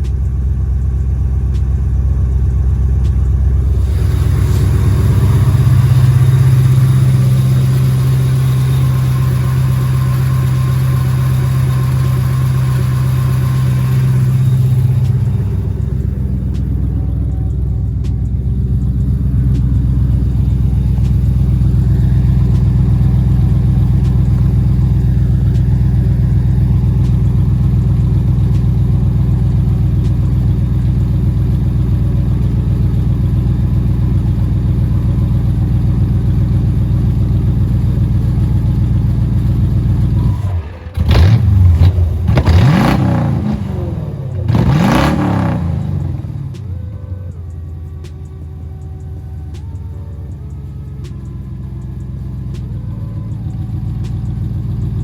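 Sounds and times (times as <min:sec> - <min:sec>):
car engine idling and revving: 0:00.0 - 0:55.0.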